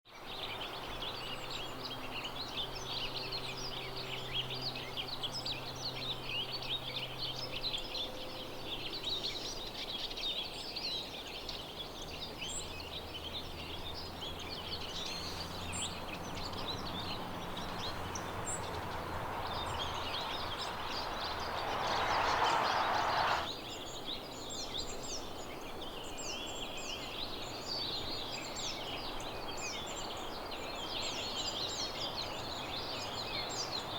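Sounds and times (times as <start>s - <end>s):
small songbirds twittering: 0.2s - 33.9s
brief rush of noise: 18.8s - 23.5s.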